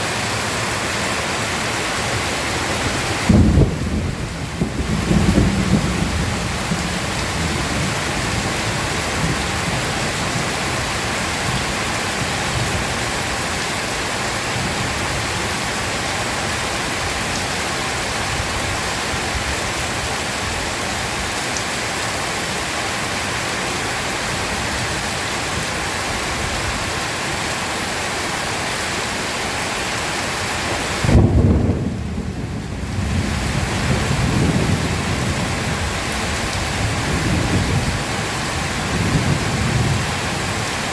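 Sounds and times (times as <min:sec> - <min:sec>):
heavy rain pouring: 0:00.0 - 0:40.9
thunder rumbling: 0:02.8 - 0:13.0, 0:31.0 - 0:40.7.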